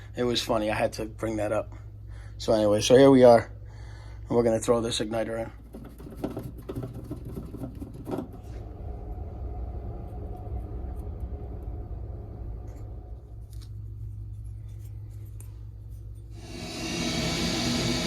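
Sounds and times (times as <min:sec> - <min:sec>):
steady low rumble: 0:08.2 - 0:18.0.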